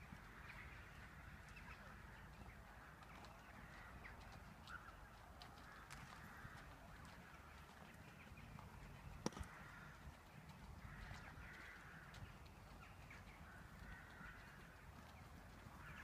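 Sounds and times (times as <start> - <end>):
distant birds calling: 8.9 - 16.0.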